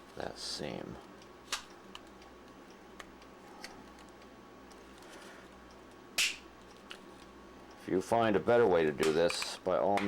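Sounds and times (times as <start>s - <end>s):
sharp plastic click: 1.5s - 2.1s.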